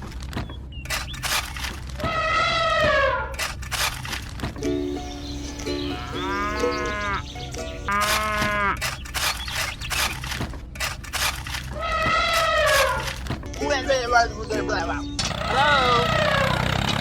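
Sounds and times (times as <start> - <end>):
long arching animal-like calls: 2.0 - 3.5, 5.9 - 7.3, 7.9 - 8.8, 11.7 - 13.2, 15.3 - 17.0
simple background melody: 4.3 - 10.8, 13.1 - 15.3.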